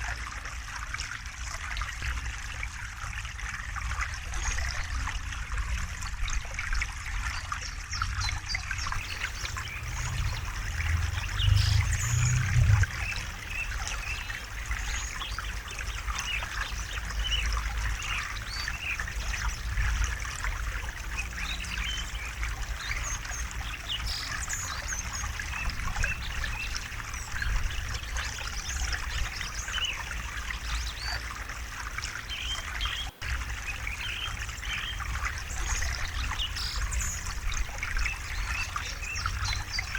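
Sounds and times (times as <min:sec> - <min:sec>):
river water trickling and babbling: 0:00.0 - 0:39.9
low rumble: 0:09.0 - 0:15.4.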